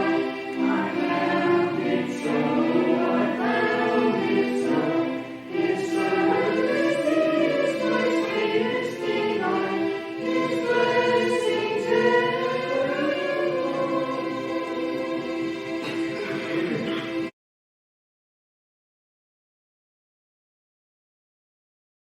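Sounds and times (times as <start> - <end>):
congregation singing a hymn: 0.0 - 17.3.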